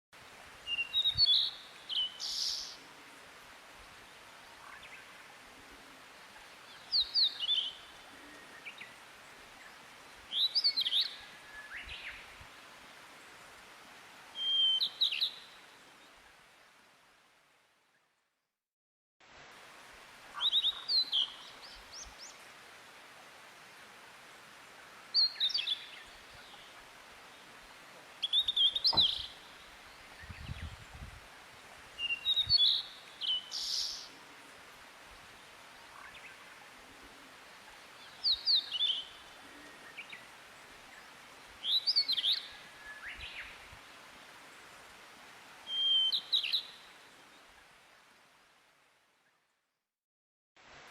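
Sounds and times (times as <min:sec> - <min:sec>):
background hiss: 0:00.2 - 0:18.2, 0:19.2 - 0:49.5, 0:50.6 - 0:50.9
bird singing: 0:28.2 - 0:29.6, 0:38.0 - 0:40.2, 0:45.7 - 0:46.8.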